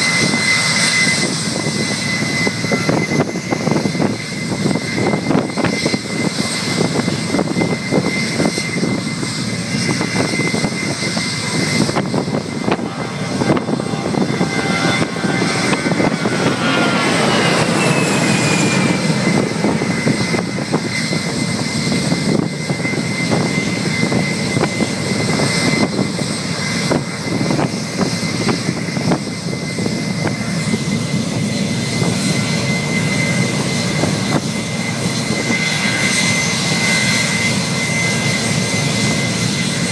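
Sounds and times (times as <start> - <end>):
jet engines roaring: 0.0 - 39.9
whine sliding down in pitch: 10.1 - 24.8.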